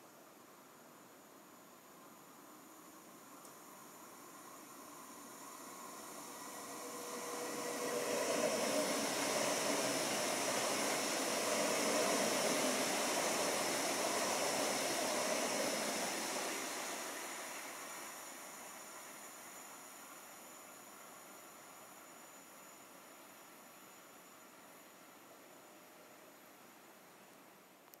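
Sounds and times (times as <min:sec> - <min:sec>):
train wheels rushing on rail: 0:03.8 - 0:20.2.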